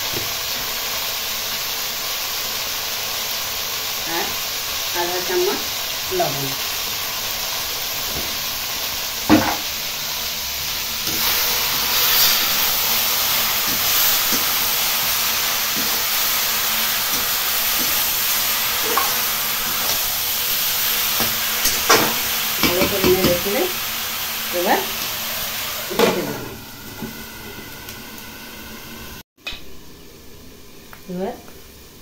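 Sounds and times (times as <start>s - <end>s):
greens sizzling in oil: 0.0s - 29.2s
metal spatula knocking on pan: 21.9s - 23.5s.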